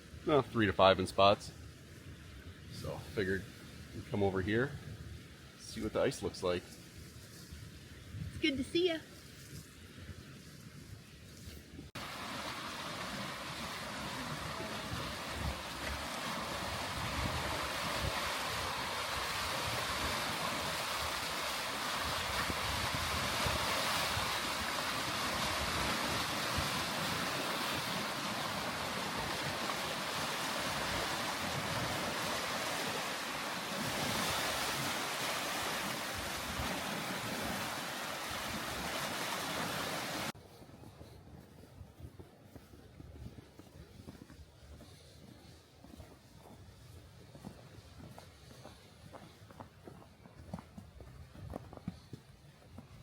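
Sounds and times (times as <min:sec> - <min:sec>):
wind: 0:00.0 - 0:53.0
waves washing against shoreline: 0:11.9 - 0:40.4.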